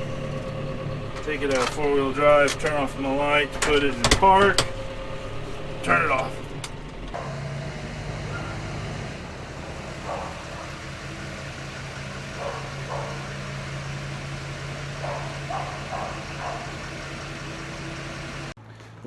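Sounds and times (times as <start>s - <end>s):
tractor engine idling: 0.0s - 18.6s
faint distant voices or barks: 12.3s - 13.4s, 15.0s - 17.0s.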